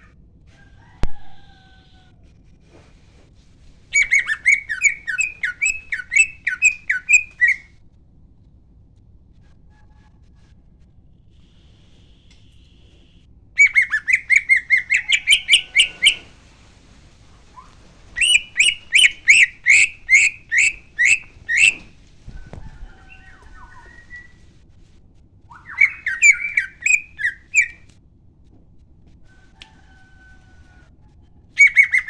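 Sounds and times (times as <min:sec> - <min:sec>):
faint bird whistles: 0:03.9 - 0:07.8, 0:11.3 - 0:16.4, 0:17.5 - 0:24.5, 0:25.5 - 0:27.9, 0:31.6 - 0:32.0
bird singing fast repeated notes: 0:04.0 - 0:07.7, 0:13.6 - 0:16.3, 0:18.2 - 0:21.9, 0:25.5 - 0:27.8, 0:31.6 - 0:32.0.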